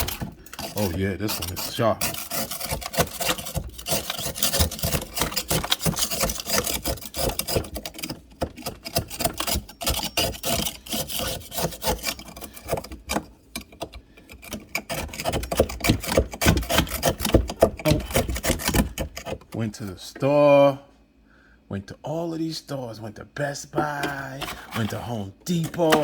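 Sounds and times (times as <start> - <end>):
utensil scraping ice: 0.0 - 13.2, 14.2 - 19.5, 23.8 - 26.0.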